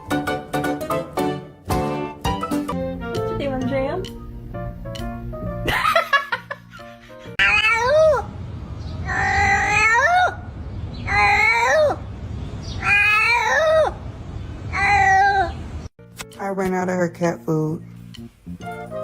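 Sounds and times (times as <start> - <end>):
cat meowing: 7.4 - 8.3, 9.0 - 10.4, 11.0 - 12.0, 12.8 - 14.0, 14.7 - 15.6.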